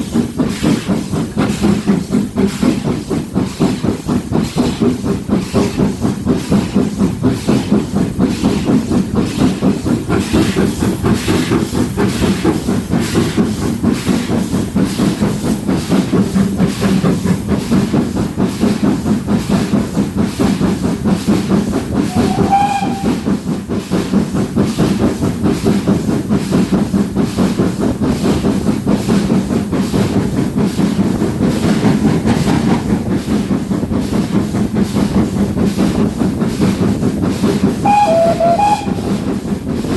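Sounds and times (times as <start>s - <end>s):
steam hissing: 0.0s - 39.9s
steam locomotive exhaust beating: 0.0s - 39.9s
short high whistle: 37.9s - 39.1s.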